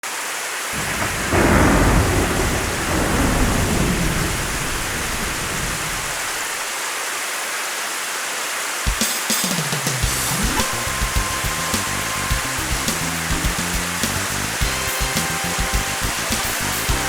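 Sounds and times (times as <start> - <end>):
heavy rain hissing: 0.0 - 17.0
thunder rumbling: 0.8 - 6.7, 10.0 - 17.0.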